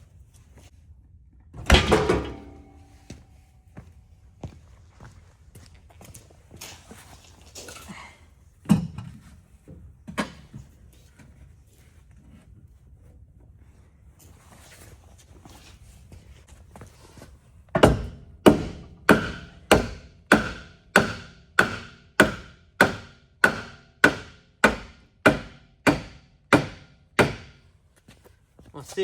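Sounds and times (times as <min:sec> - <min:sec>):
hammer striking wooden block: 0:17.8 - 0:27.6.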